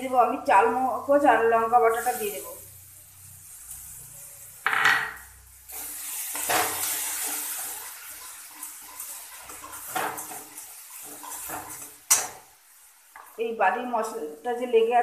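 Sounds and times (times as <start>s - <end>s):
spices sizzling in hot oil: 0.0s - 15.0s
metal spatula scraping pan: 5.7s - 12.3s.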